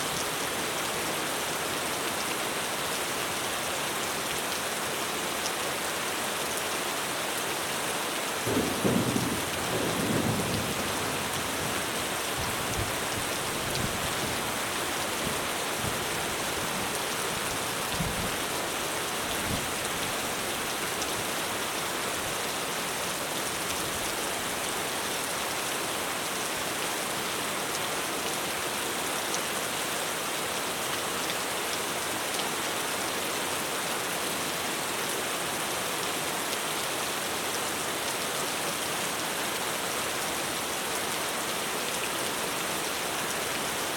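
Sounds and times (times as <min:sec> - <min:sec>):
heavy rain on a roof: 0:00.0 - 0:43.9.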